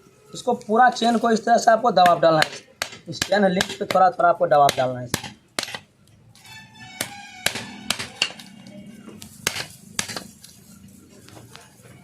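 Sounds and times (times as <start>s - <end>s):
background music: 6.4s - 8.9s.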